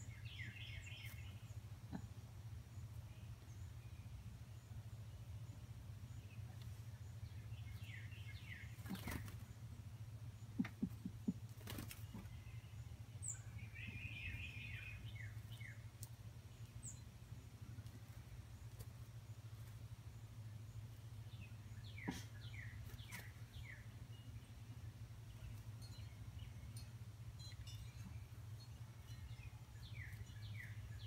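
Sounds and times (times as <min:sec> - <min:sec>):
bird chirping: 0:00.0 - 0:31.0
steady low hum: 0:00.0 - 0:31.0
bird wings flapping: 0:11.5 - 0:12.2.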